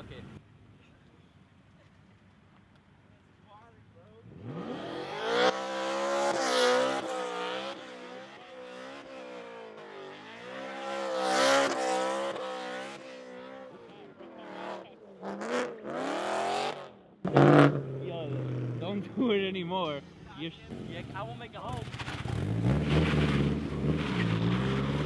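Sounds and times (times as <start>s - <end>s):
car engine revving hard: 4.3s - 13.7s, 14.4s - 18.9s, 22.0s - 25.0s.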